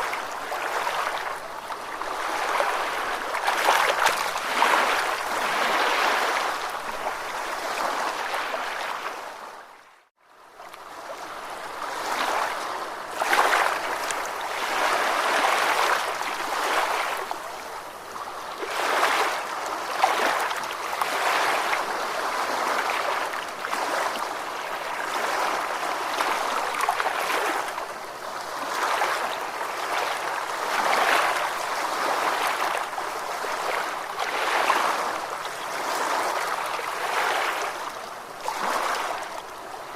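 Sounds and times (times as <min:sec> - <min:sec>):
ocean waves washing: 0:00.0 - 0:09.4, 0:10.9 - 0:39.9.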